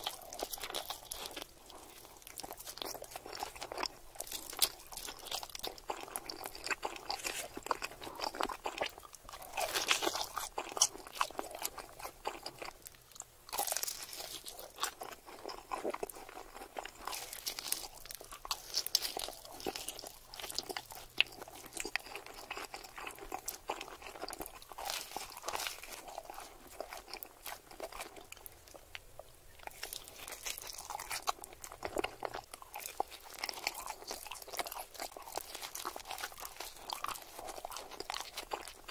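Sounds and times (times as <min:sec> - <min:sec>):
biting and chewing pizza: 0:00.0 - 0:38.9
crust crunching: 0:13.5 - 0:28.8.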